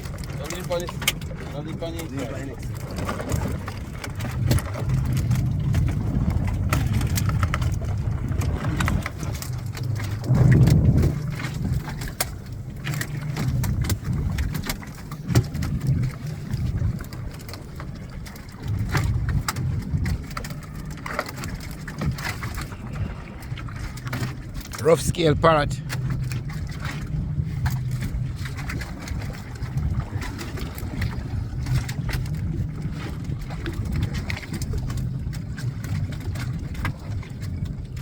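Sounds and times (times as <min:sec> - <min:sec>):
boat engine rumble: 0:00.0 - 0:38.0
knocks and rattles of fish trap: 0:02.8 - 0:16.2.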